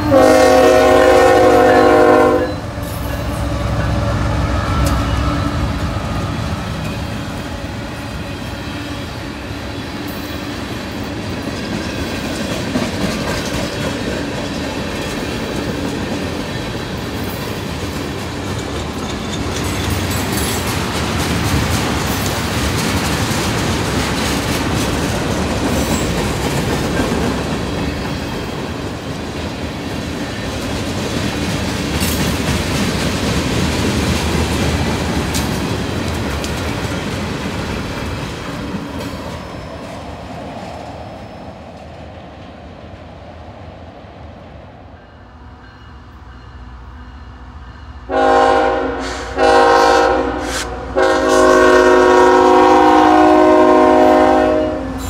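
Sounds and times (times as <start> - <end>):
locomotive air horn chord: 0.0 - 6.2, 48.1 - 55.0
freight train wheel clatter: 2.6 - 42.0.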